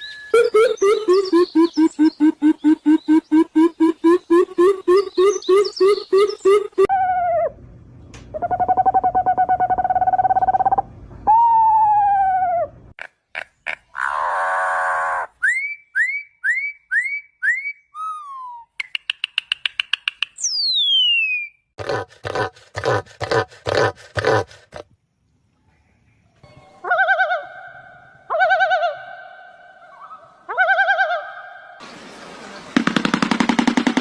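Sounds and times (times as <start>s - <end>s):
varied bird calls: 0.0s - 6.9s, 13.0s - 24.8s.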